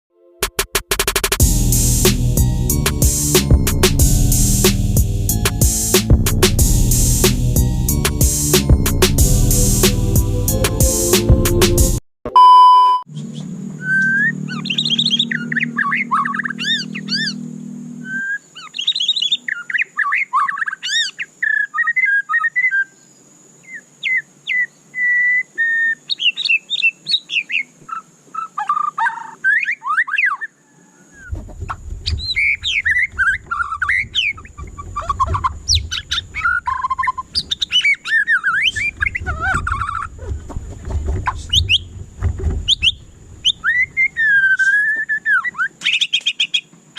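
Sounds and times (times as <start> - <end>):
songbird whistling and trilling: 13.2 - 17.4, 18.0 - 23.0, 23.6 - 31.4, 32.1 - 40.1, 41.4 - 41.9, 42.7 - 46.6.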